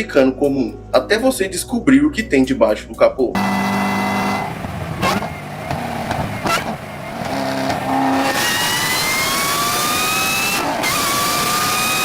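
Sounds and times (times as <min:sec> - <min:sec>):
car engine accelerating: 0:03.4 - 0:12.0
high whine climbing in pitch: 0:03.4 - 0:12.0.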